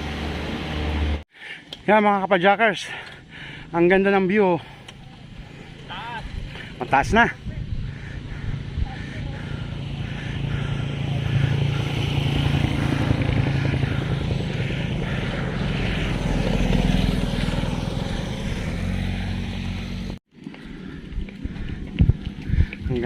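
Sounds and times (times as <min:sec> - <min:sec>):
wind and road noise: 0:00.0 - 0:23.0
motorcycle engine running: 0:04.7 - 0:23.0.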